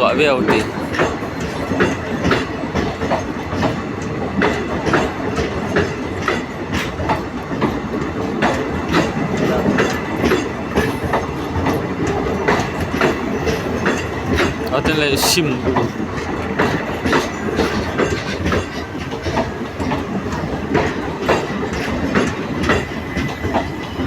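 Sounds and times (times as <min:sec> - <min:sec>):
train rumbling along track: 0:00.0 - 0:24.0
wheels clacking over rail joints: 0:00.0 - 0:24.0.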